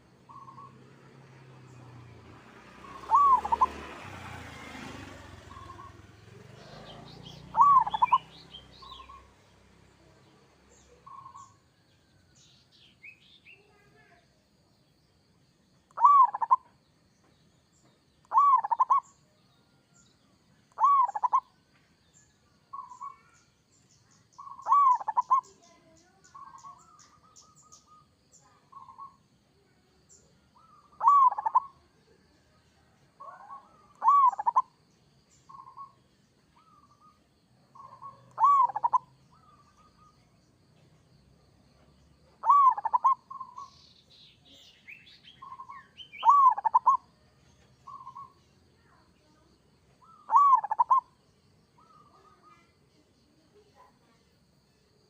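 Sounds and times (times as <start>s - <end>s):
dove cooing: 2.8s - 3.8s, 5.4s - 9.2s, 16.0s - 16.6s, 18.3s - 19.0s, 20.8s - 21.4s, 24.4s - 25.5s, 30.6s - 31.9s, 33.2s - 34.8s, 37.8s - 40.1s, 42.4s - 43.7s, 45.4s - 47.1s, 50.0s - 51.2s.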